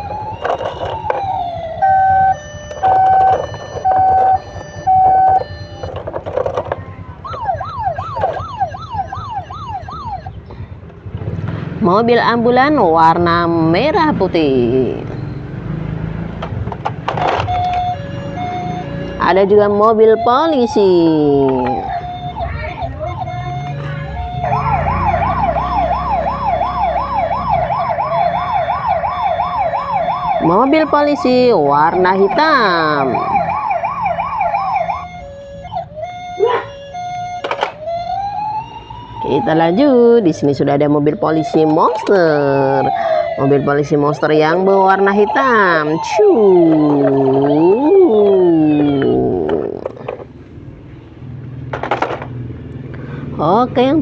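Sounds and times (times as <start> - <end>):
handling clatter: 0.0 - 1.5, 2.6 - 8.7
toy electronic siren: 0.0 - 10.4, 17.1 - 50.0.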